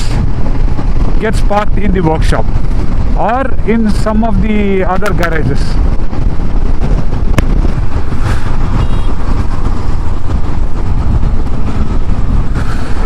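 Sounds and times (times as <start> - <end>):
motorcycle cruising rumble: 0.0 - 13.0.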